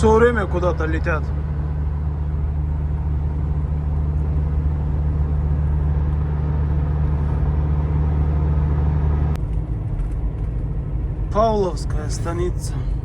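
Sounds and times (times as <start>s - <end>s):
tyre and road noise: 0.0s - 13.0s
van engine drone: 0.0s - 13.0s.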